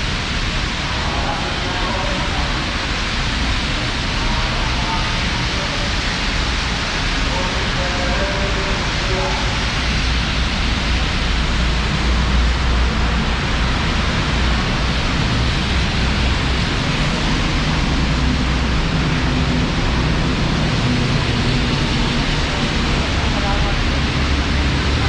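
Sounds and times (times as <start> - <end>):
heavy rain pouring: 0.0 - 25.0
low rumble: 0.0 - 25.0.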